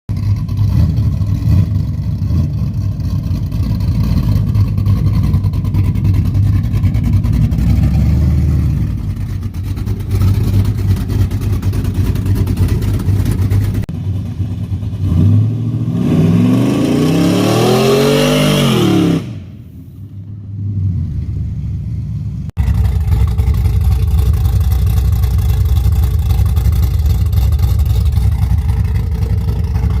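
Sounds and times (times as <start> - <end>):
engine idling with rough rumble: 0.1 - 15.5, 19.7 - 30.0
engine revving: 0.2 - 19.7, 20.5 - 30.0.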